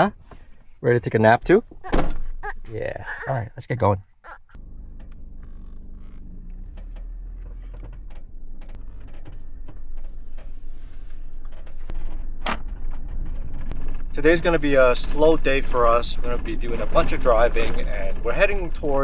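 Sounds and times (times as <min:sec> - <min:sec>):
van engine and road noise: 0:04.6 - 0:19.0.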